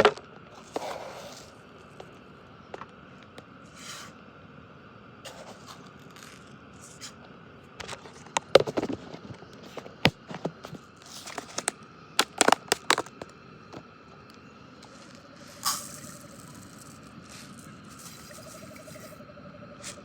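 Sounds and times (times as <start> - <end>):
sharp clicks and knocks: 9.8 - 13.8.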